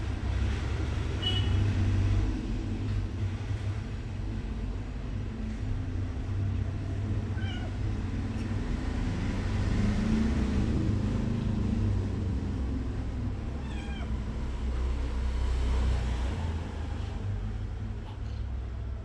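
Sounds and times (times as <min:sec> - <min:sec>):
cat meowing: 0:07.2 - 0:07.9, 0:13.5 - 0:14.4.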